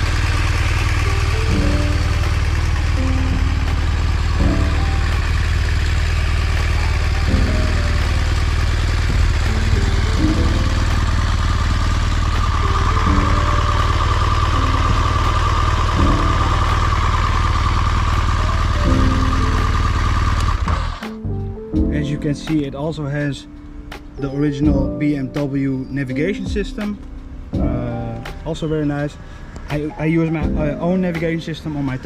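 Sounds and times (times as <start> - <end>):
motorcycle engine idling: 0.0 - 21.2
background music: 0.0 - 32.0.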